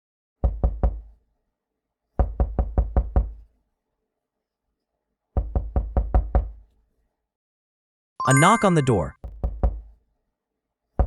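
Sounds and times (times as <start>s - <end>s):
knuckles knocking on door: 0.4s - 1.0s, 2.2s - 3.4s, 5.4s - 6.6s, 9.2s - 9.8s.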